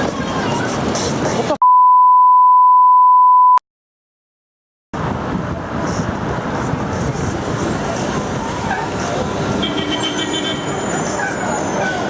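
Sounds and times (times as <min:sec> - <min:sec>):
city traffic and road noise: 0:00.0 - 0:01.6, 0:05.0 - 0:12.0
censor bleep tone: 0:01.6 - 0:03.6.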